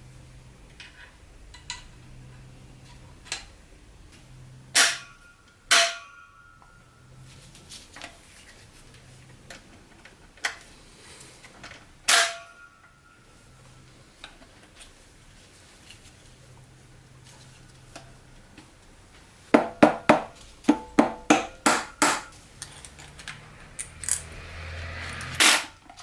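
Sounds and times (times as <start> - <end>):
loud metallic clinks: 20.8 - 25.7.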